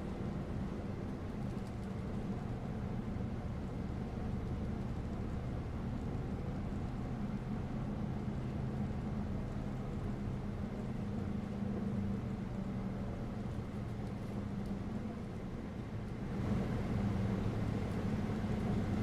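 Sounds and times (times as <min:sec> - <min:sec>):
bus engine running: 0:00.0 - 0:19.0
road noise: 0:07.4 - 0:19.0.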